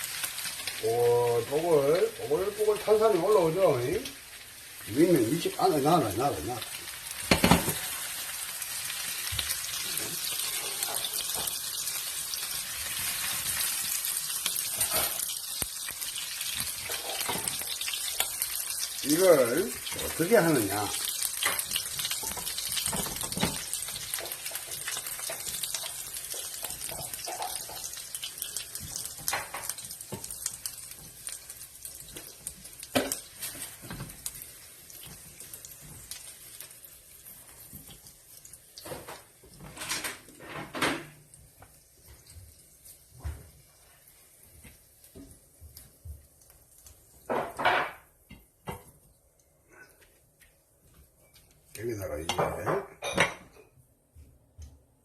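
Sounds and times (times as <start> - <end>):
dishes and utensils clinking: 14.5 - 15.4, 16.8 - 18.3, 21.3 - 30.3, 52.3 - 53.8.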